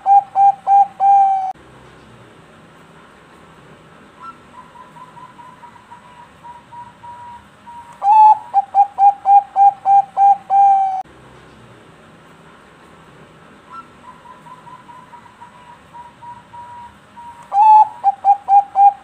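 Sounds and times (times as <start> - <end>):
dove cooing: 0.0 - 1.6, 4.2 - 11.0, 13.7 - 19.0.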